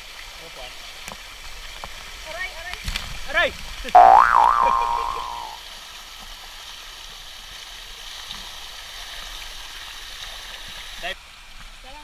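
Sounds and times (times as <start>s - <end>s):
waterfall splashing into pool: 0.0s - 12.0s
loud pitched sound: 4.0s - 5.6s.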